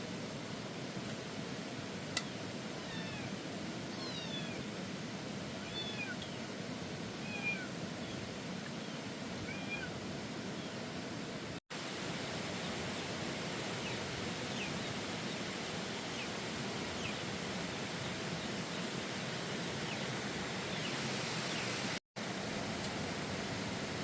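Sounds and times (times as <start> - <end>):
steady outdoor hiss: 0.0 - 24.0.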